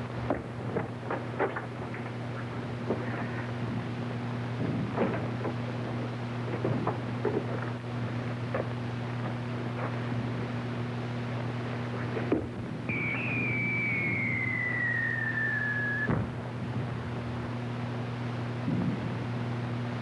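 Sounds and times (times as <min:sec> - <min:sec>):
film soundtrack hum: 0:00.0 - 0:20.0
whistle falling in pitch: 0:12.9 - 0:16.3.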